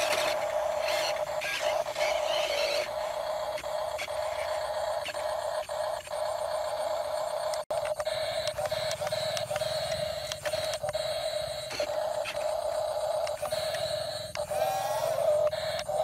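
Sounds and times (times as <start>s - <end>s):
small electric motors whining: 0.0s - 16.0s
clicks: 7.0s - 16.0s.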